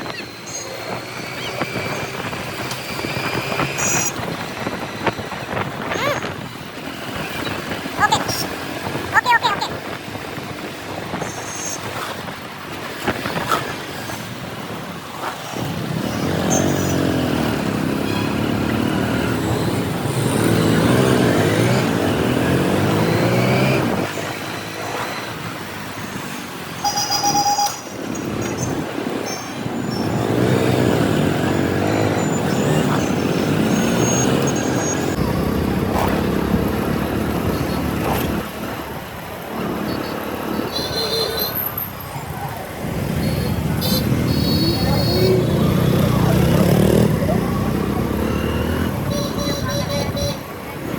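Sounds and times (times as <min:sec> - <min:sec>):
road and traffic noise: 0:00.0 - 0:50.9
motorcycle engine accelerating: 0:15.3 - 0:26.6, 0:29.8 - 0:41.2, 0:42.3 - 0:50.9
horn beep: 0:26.8 - 0:30.1, 0:40.6 - 0:41.7, 0:43.2 - 0:46.1, 0:47.9 - 0:50.5.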